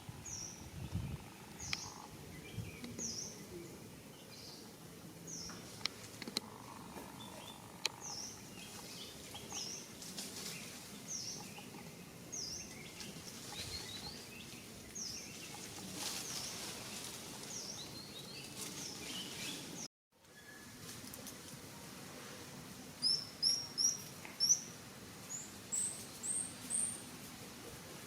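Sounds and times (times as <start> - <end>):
steady outdoor noise: 0.0 - 28.0
softer chirps of other birds: 0.2 - 4.7, 5.3 - 20.7.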